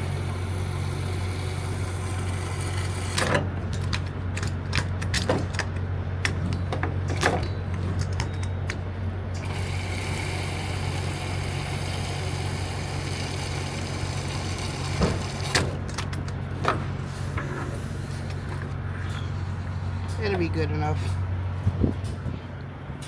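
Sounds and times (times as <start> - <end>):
fuel pump humming: 0.0 - 23.0.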